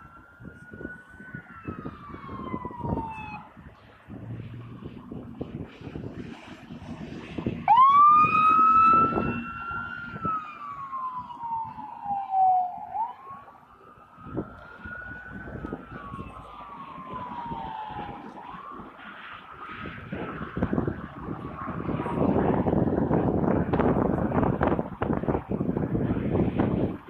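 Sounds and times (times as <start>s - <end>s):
police siren wailing: 0.0s - 27.0s
street noise rumble: 0.0s - 27.0s.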